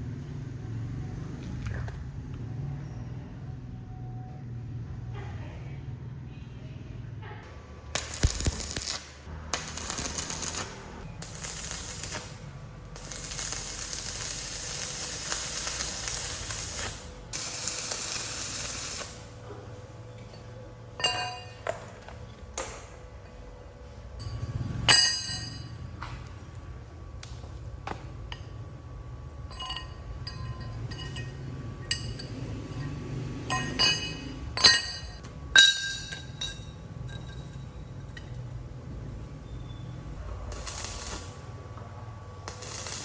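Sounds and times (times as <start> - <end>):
light metallic clinks: 29.5 - 39.9.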